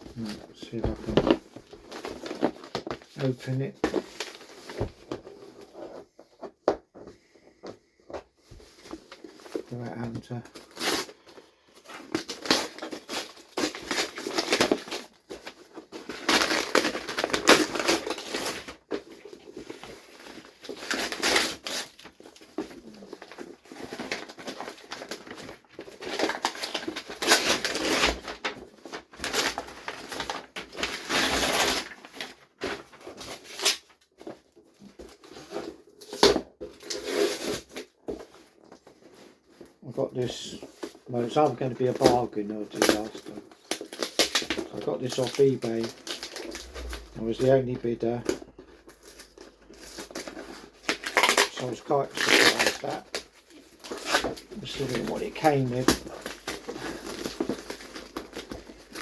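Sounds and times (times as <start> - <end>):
cardboard scraping and tearing: 12.0 - 39.6, 41.9 - 59.0
packaging crinkling: 40.3 - 59.0.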